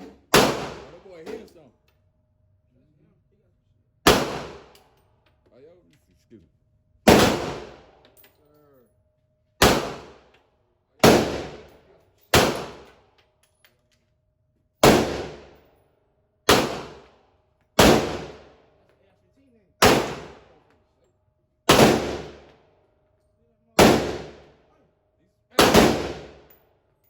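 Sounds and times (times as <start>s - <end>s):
gunshots with echo: 0.3s - 1.0s, 4.1s - 4.7s, 7.1s - 7.9s, 9.6s - 10.2s, 17.8s - 18.4s, 19.8s - 20.5s, 21.7s - 22.5s, 23.8s - 24.5s, 25.6s - 26.5s.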